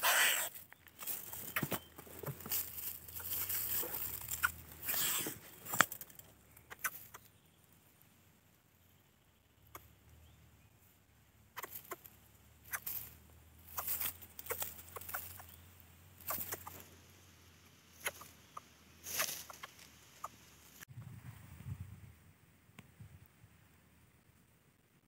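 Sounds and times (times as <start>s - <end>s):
short clucking bird calls: 0.0s - 7.6s, 9.4s - 10.4s, 11.5s - 17.1s, 17.9s - 20.8s.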